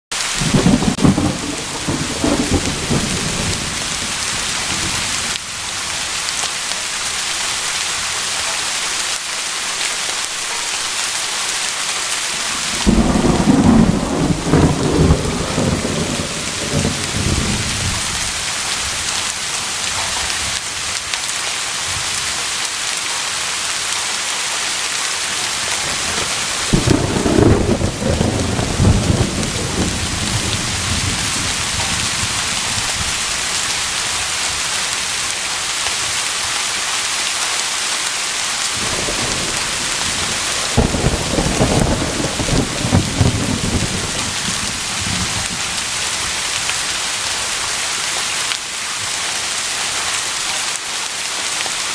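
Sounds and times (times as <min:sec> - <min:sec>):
steady rain: 0:00.1 - 0:51.9
thunder rumbling: 0:00.2 - 0:06.1, 0:12.5 - 0:20.6, 0:25.4 - 0:34.0, 0:38.8 - 0:47.1.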